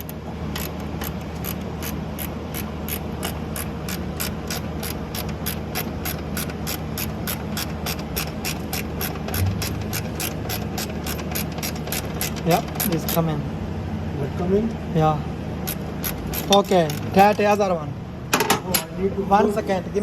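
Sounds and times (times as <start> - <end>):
ratchet wrench clicking: 0.0 - 13.3, 15.6 - 17.4
low hum: 9.3 - 11.2.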